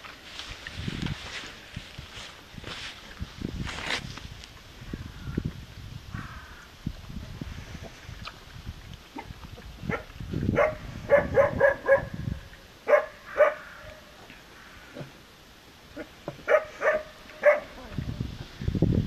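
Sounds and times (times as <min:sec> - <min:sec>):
puppies yapping: 0:12.9 - 0:13.6.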